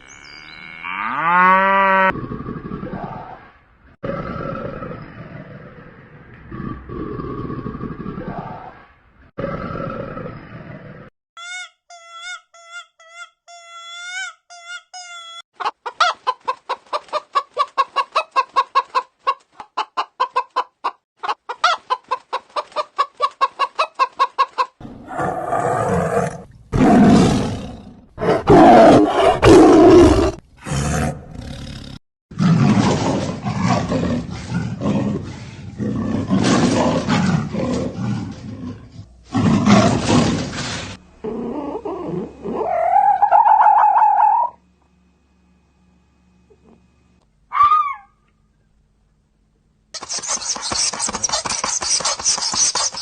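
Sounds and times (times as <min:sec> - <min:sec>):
loud harsh animal calls: 0:41.7 - 0:44.6, 0:47.5 - 0:48.2
high pitched animal chirps: 0:41.8 - 0:44.6, 0:47.5 - 0:48.2
rapid repeated animal calls: 0:50.0 - 0:53.0.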